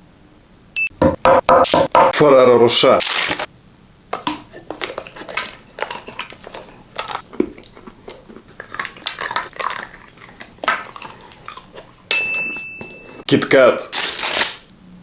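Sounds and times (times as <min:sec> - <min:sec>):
crunching and chewing chocolate: 0:04.2 - 0:14.7.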